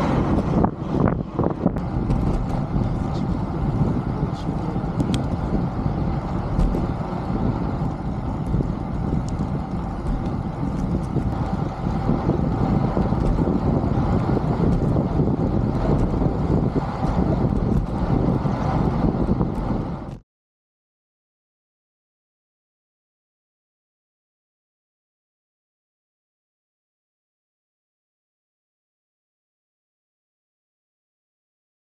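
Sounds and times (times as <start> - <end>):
wind buffeting microphone: 0.0 - 20.2.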